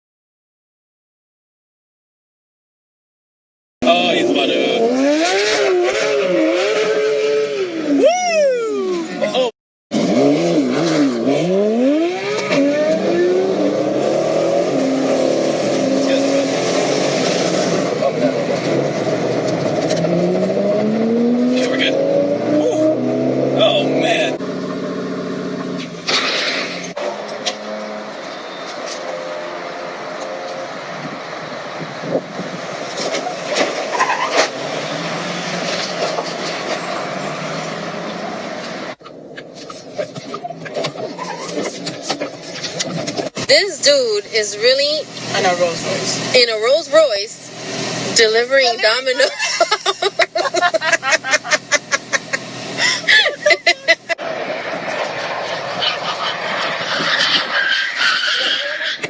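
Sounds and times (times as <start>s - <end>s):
sports car engine revving: 3.8s - 8.1s, 8.8s - 49.6s.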